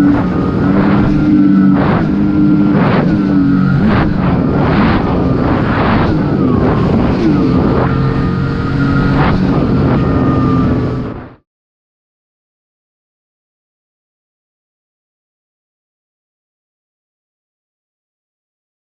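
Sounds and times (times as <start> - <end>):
personal watercraft engine running: 0.0 - 11.4.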